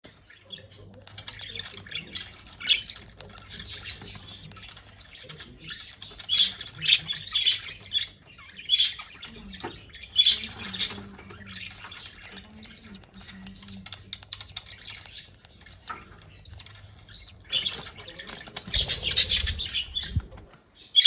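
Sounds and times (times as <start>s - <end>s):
faint low hum: 0.2s - 20.8s
lovebird squeaky chirps: 2.3s - 8.1s, 12.7s - 20.1s.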